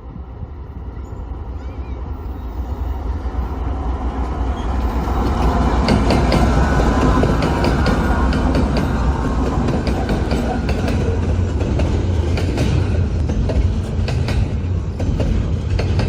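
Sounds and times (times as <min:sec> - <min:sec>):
locomotive engine rumble: 0:00.0 - 0:16.0
train wheels clicking over rail joints: 0:04.2 - 0:16.0.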